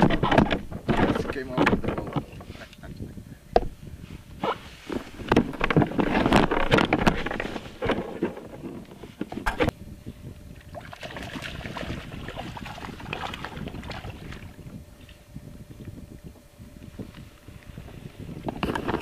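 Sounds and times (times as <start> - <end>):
knocks and rattles on kayak: 0.0 - 2.6, 3.5 - 3.8, 4.4 - 9.7, 18.3 - 19.0
wind on microphone: 0.0 - 19.0
soft movement sounds: 3.7 - 10.2.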